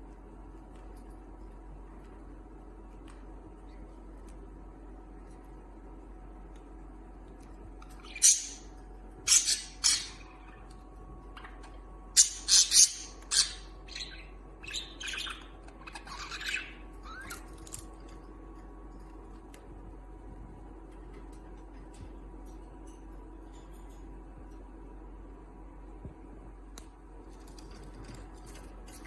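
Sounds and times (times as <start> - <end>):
budgerigars squawking and chirping: 8.0 - 8.6, 9.3 - 10.4, 12.2 - 17.3.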